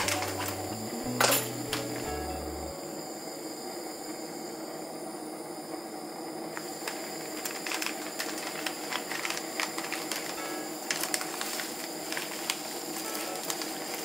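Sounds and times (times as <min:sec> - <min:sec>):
pan of water hissing on burner: 0:00.0 - 0:14.0
small clicks and crackles: 0:06.6 - 0:14.0.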